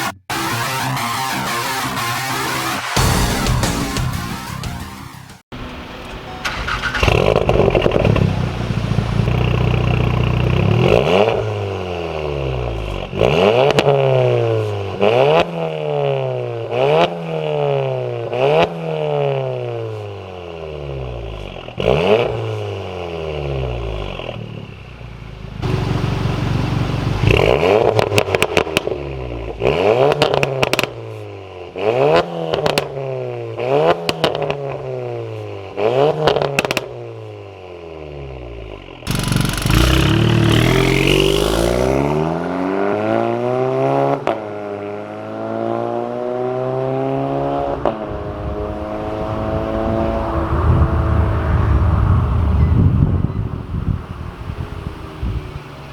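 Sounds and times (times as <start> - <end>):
car engine revving: 5.6 - 19.8, 21.0 - 31.0, 38.2 - 52.6
exhaust crackles and pops: 6.1 - 10.2, 25.6 - 29.0, 30.0 - 31.0, 36.3 - 36.9, 39.1 - 42.0.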